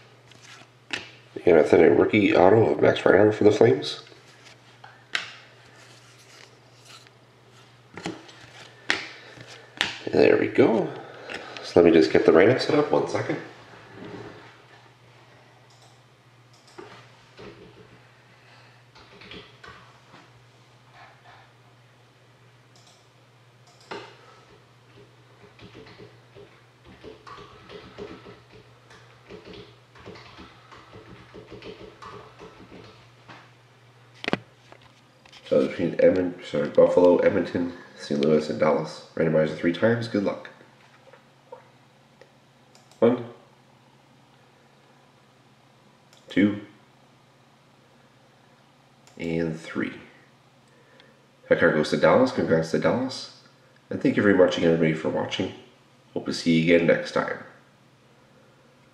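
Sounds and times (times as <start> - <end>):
low steady hum: 0.0 - 58.9
cards rubbing on a table: 5.6 - 7.7
computer keyboard typing: 25.5 - 26.1, 26.9 - 33.0.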